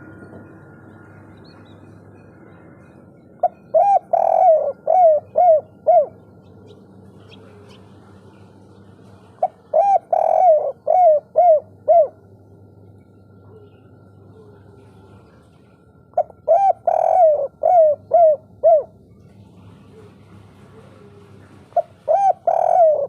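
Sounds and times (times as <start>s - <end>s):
dove cooing: 3.4s - 12.4s, 13.2s - 15.4s, 16.2s - 23.0s.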